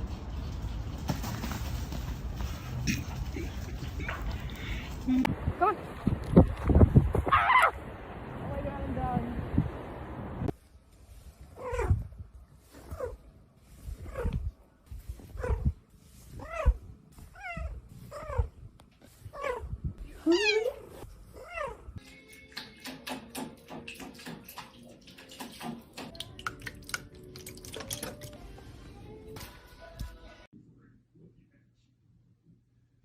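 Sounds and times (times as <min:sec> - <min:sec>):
cat meowing: 0:20.2 - 0:21.8.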